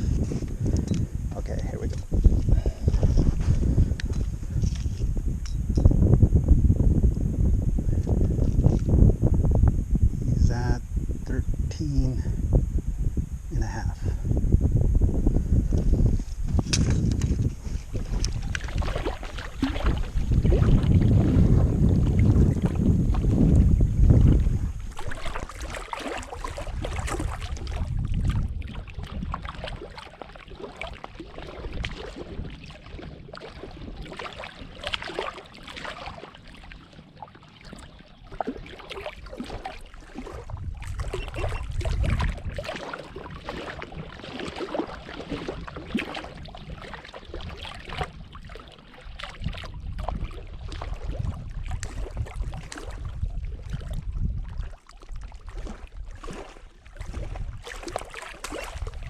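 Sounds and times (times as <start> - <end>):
water lapping against kayak hull: 0.0 - 59.0
wind buffeting microphone: 0.0 - 59.0.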